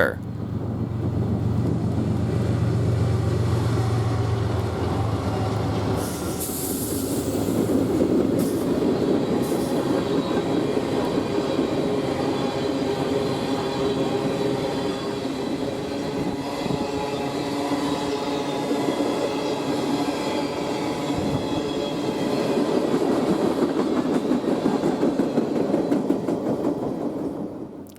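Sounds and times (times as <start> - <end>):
diesel locomotive engine drone: 0.0 - 26.2
freight cars rumbling on rails: 0.0 - 27.7
hiss bursts: 6.0 - 8.8.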